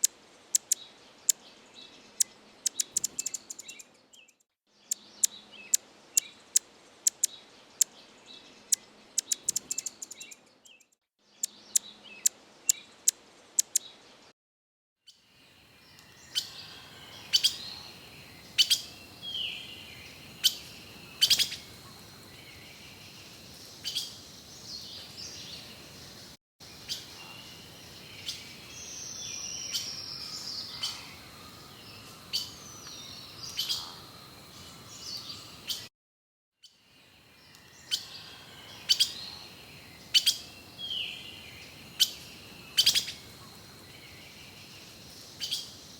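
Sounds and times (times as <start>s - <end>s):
small birds chirping: 0.0s - 14.1s, 15.1s - 35.9s, 36.6s - 45.9s
steady background hiss: 15.5s - 35.8s, 37.0s - 45.9s.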